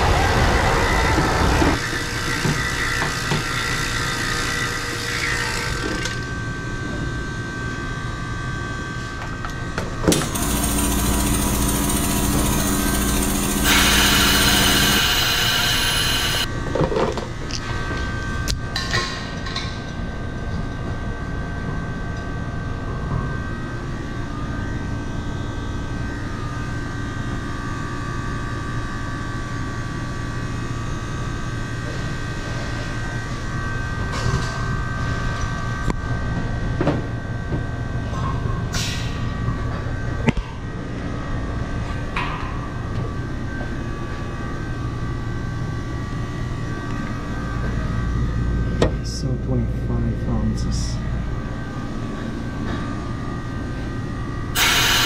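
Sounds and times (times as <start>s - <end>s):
machine hum: 0.0s - 16.6s, 39.2s - 55.0s
refrigerant gas hissing: 13.2s - 16.5s, 54.6s - 55.0s.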